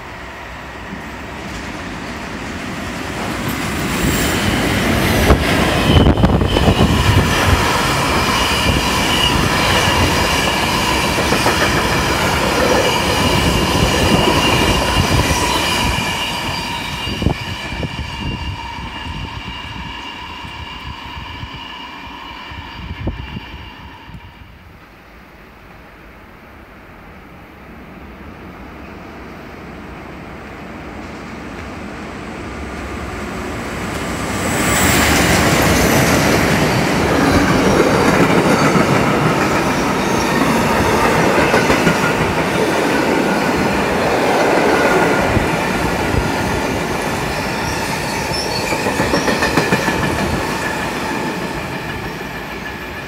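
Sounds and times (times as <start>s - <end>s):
freight train wheels rumbling: 0.0s - 53.0s
high-pitched wheel squeal: 4.0s - 11.6s, 12.8s - 24.6s, 46.2s - 53.0s.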